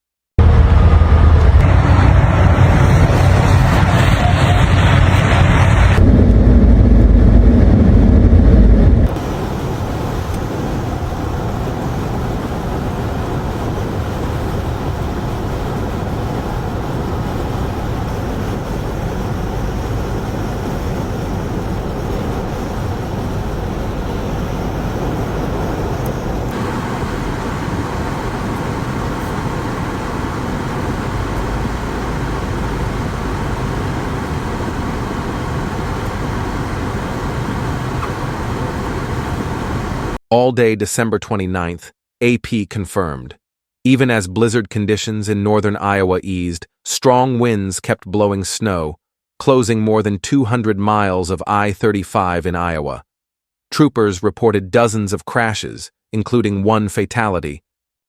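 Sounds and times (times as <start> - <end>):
loud low rumble: 0.4 - 40.2
vehicle and road noise: 0.4 - 40.2.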